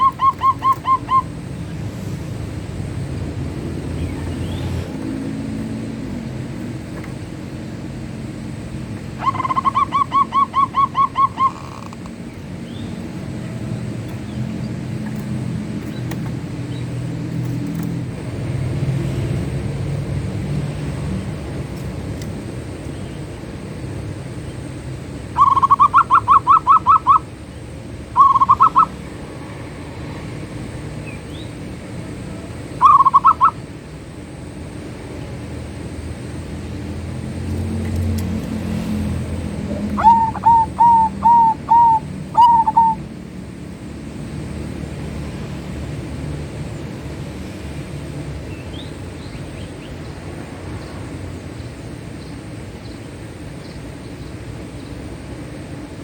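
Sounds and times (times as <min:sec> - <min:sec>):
dove cooing: 0:00.0 - 0:01.7, 0:08.5 - 0:12.3, 0:25.3 - 0:27.4, 0:28.2 - 0:29.0, 0:32.2 - 0:33.7, 0:39.3 - 0:43.2.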